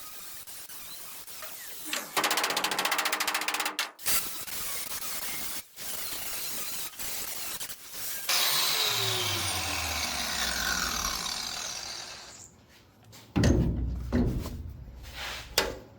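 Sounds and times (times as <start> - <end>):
grinder working steel: 6.4 - 12.5
grinder whine spinning down: 8.3 - 12.5.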